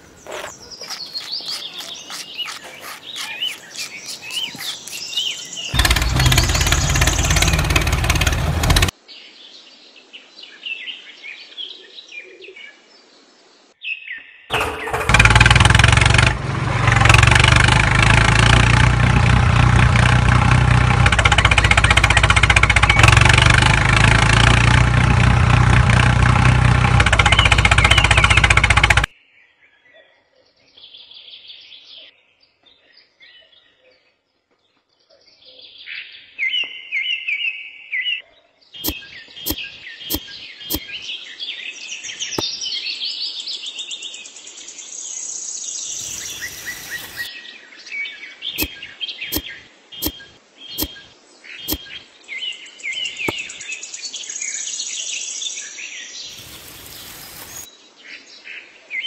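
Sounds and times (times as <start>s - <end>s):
small birds chirping and singing: 0.0s - 14.9s, 27.0s - 59.0s.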